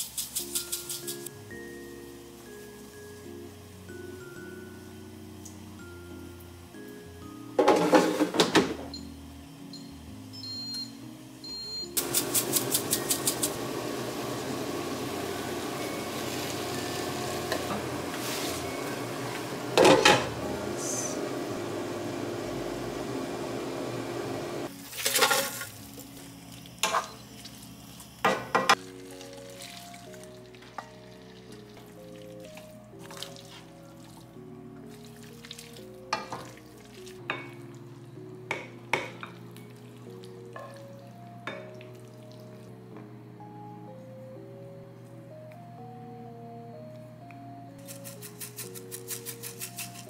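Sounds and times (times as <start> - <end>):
vegetables sizzling in a wok: 0.0 - 8.4, 9.1 - 31.8
soft background music: 0.0 - 50.0.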